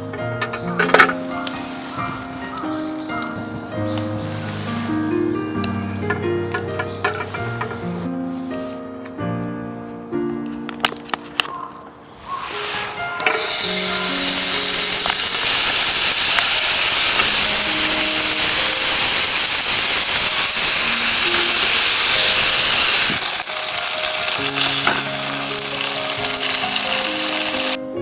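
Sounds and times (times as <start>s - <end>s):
sizzling hiss: 0.0s - 8.5s, 12.1s - 28.0s
background music: 0.0s - 14.4s, 23.4s - 28.0s.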